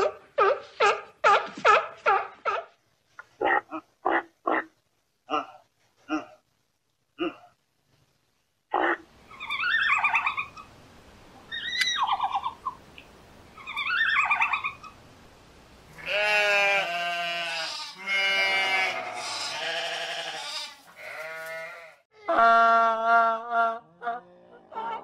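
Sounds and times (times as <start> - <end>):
sheep bleating: 16.0 - 22.0.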